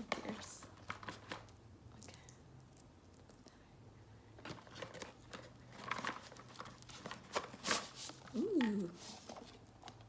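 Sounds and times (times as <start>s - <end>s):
packaging rustling and clicking: 4.4s - 10.0s.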